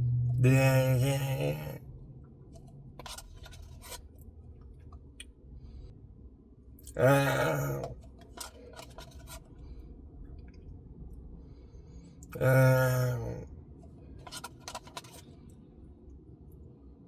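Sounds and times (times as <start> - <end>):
person humming or groaning: 0.0 - 1.8, 6.9 - 8.0, 12.3 - 13.4
spoon clicking and scraping: 3.0 - 4.0, 8.2 - 9.5, 14.2 - 15.2.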